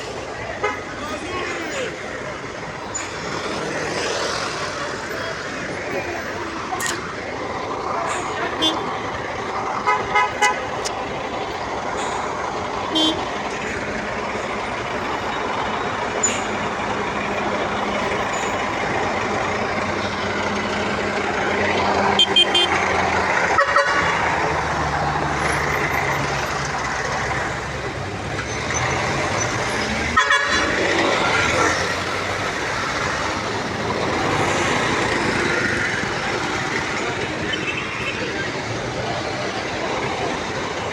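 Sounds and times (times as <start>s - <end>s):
vehicle engine running: 0.0s - 40.9s
car horns honking: 8.4s - 9.0s, 9.8s - 10.9s, 12.9s - 13.4s, 22.1s - 22.9s, 23.5s - 24.2s, 30.0s - 31.1s.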